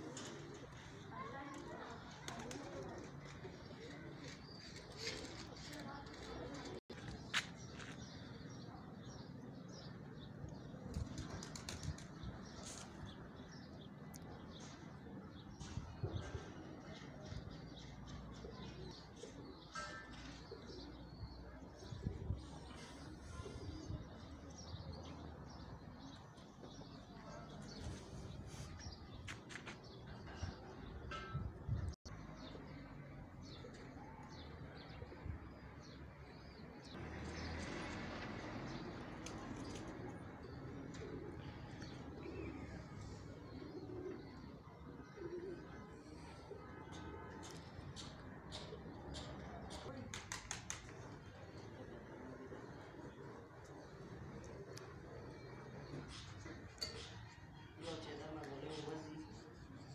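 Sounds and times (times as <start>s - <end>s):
small birds chirping: 33.4s - 59.9s.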